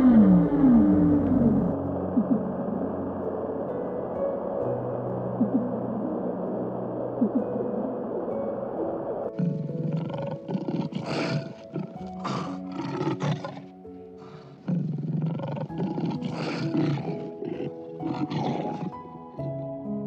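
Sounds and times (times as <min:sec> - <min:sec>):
lion roaring: 0:00.0 - 0:02.5, 0:09.4 - 0:19.0
soft background music: 0:00.0 - 0:20.0.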